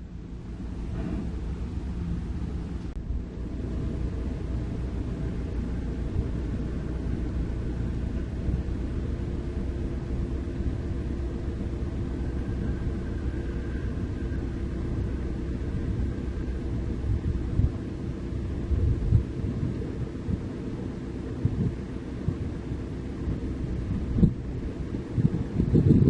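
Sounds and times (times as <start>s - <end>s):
diesel engine rumbling: 0.0s - 26.0s.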